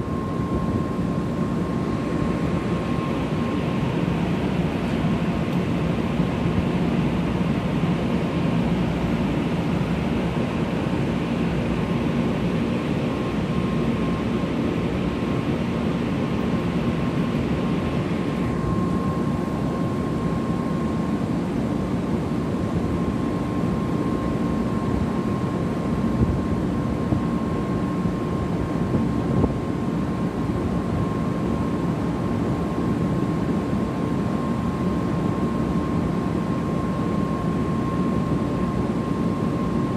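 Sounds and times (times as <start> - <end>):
train equipment hum and rush: 0.0 - 39.9.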